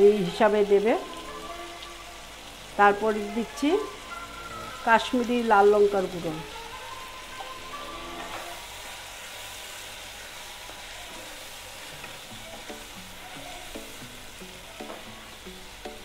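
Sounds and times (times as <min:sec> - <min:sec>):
food sizzling in oil: 0:00.0 - 0:16.0
pan being stirred: 0:03.5 - 0:16.0.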